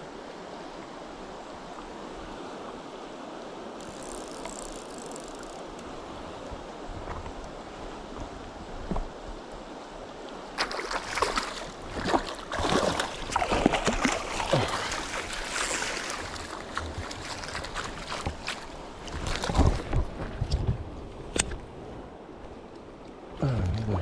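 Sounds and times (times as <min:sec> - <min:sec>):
river flowing: 0:00.0 - 0:24.0
splashing in shallow water: 0:10.5 - 0:20.6.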